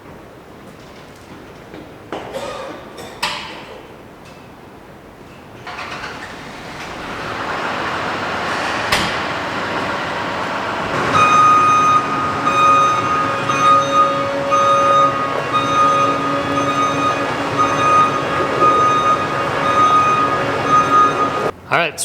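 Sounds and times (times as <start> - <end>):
crop sprayer engine running: 5.7 - 21.5
backup alarm beeping: 6.9 - 21.5.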